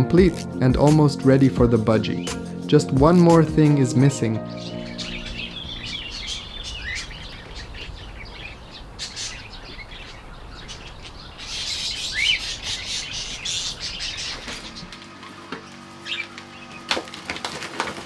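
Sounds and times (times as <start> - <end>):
budgerigars chirping and chattering: 4.5 - 15.0, 16.0 - 16.8
rising whistles: 4.9 - 14.5.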